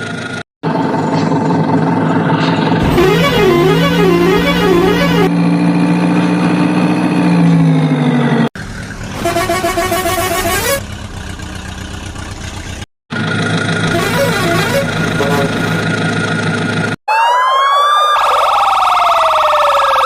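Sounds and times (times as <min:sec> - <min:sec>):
rough engine-like noise: 0:00.0 - 0:17.0
two-tone horn-like drone: 0:02.8 - 0:05.3, 0:09.2 - 0:10.8, 0:13.9 - 0:15.8
warbling police siren: 0:02.8 - 0:05.3, 0:17.1 - 0:20.0.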